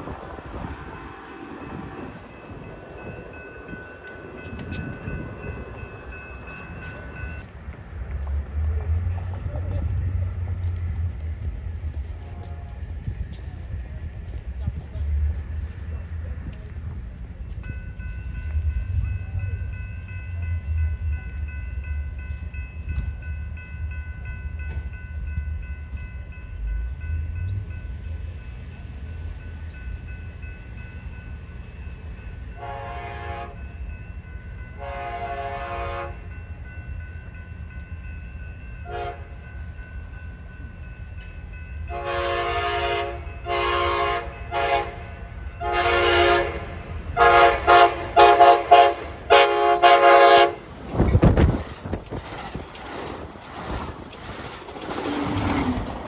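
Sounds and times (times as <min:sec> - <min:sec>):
diesel locomotive rumble: 0:00.0 - 0:56.0
locomotive air horn blasts: 0:32.6 - 0:33.6, 0:34.8 - 0:36.3, 0:38.8 - 0:39.4, 0:41.9 - 0:50.6.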